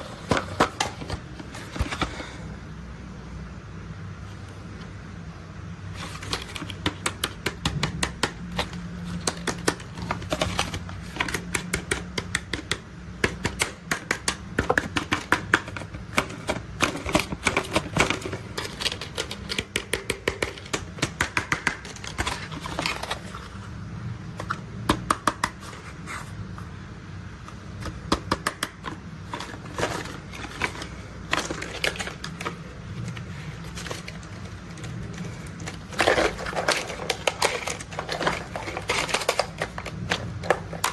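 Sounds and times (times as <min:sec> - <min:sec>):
low steady hum: 0:00.0 - 0:40.9
plastic toys clicking and clacking: 0:05.9 - 0:23.6, 0:27.8 - 0:40.9.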